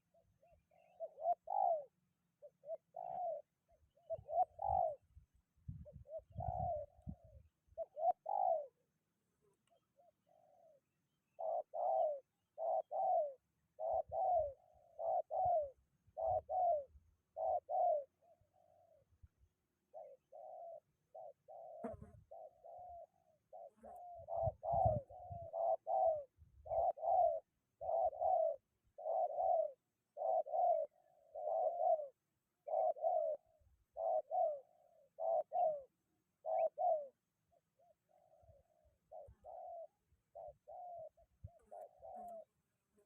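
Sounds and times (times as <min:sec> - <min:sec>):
doves cooing: 0:00.0 - 0:05.0, 0:05.8 - 0:08.8, 0:10.0 - 0:19.0, 0:19.9 - 0:43.0.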